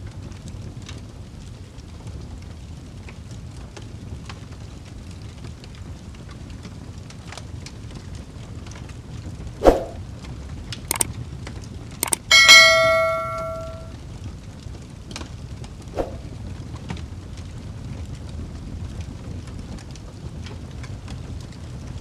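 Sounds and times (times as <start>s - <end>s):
loud ringing metallic clang: 12.0s - 13.9s
fire crackling: 16.1s - 22.0s.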